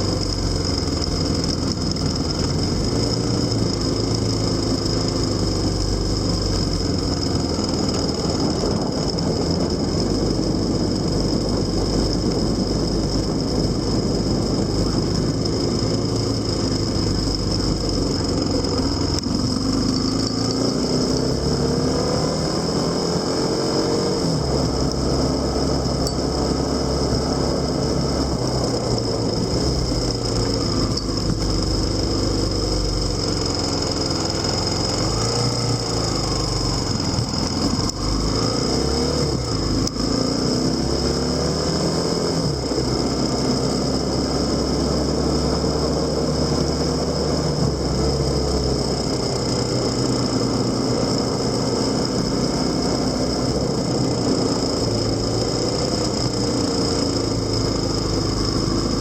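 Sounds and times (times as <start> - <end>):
high-pitched whine: 0.0 - 59.0
motorcycle engine running: 0.0 - 59.0.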